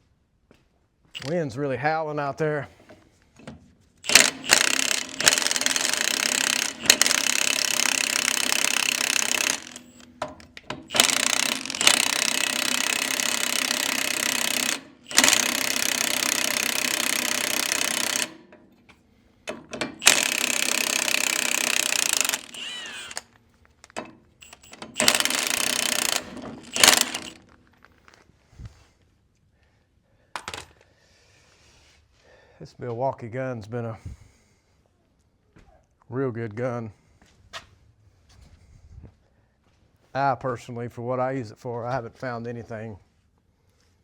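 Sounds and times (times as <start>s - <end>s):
impact wrench hammering: 4.0s - 18.7s, 19.5s - 23.2s, 24.0s - 27.4s.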